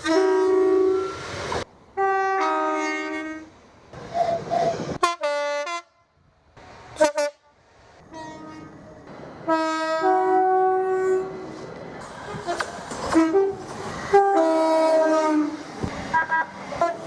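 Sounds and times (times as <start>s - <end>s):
train horn blasts: 0.0s - 1.2s, 2.0s - 3.5s, 4.5s - 6.1s, 7.0s - 8.8s, 9.5s - 11.5s, 12.4s - 17.0s.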